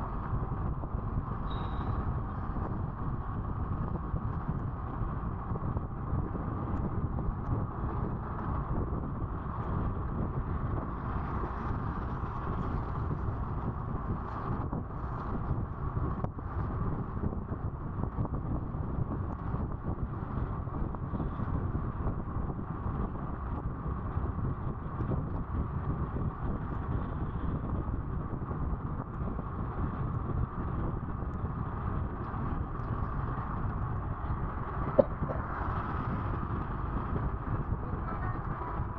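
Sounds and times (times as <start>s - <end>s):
road noise: 0.0s - 38.9s
wind buffeting microphone: 0.0s - 38.9s.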